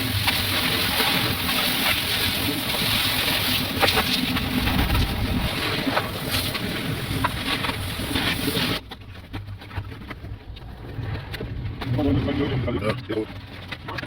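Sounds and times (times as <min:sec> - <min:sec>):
car wash equipment hissing: 0:00.0 - 0:08.8.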